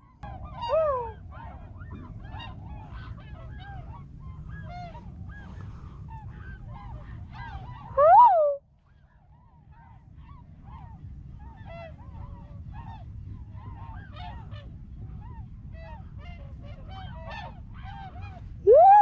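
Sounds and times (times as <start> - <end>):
swans whooping: 0.3 - 1.6, 6.4 - 8.6, 18.6 - 19.0.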